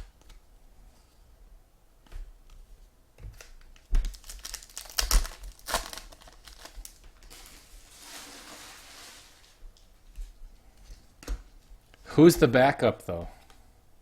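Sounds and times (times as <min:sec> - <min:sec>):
foil wrappers crinkling and tearing: 0:04.0 - 0:09.6.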